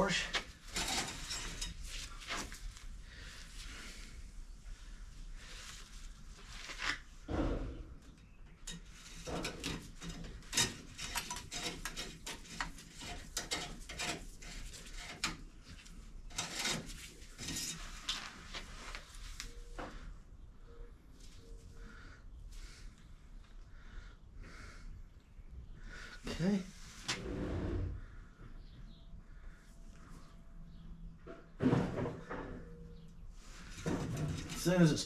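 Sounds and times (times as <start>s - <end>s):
objects clattering when handled: 0.1s - 2.8s, 7.5s - 20.0s, 33.5s - 35.0s
heavy thump: 7.3s - 8.0s.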